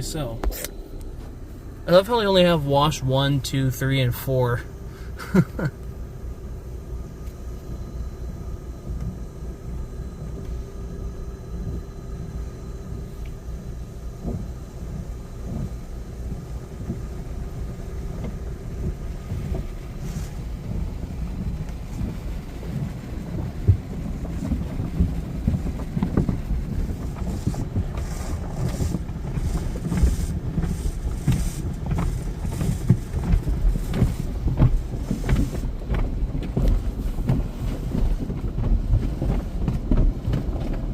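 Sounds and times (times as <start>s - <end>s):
car wash equipment rumble: 0.0s - 40.9s
water striking car: 15.0s - 40.9s.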